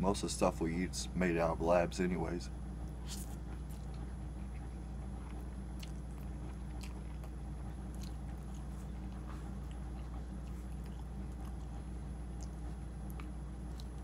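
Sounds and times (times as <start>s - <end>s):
steady low hum: 0.0s - 14.0s
chewing noodles: 2.9s - 14.0s.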